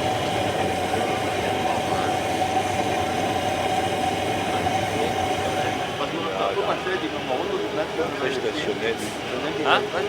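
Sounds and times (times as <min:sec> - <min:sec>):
high whine: 0:00.0 - 0:06.8.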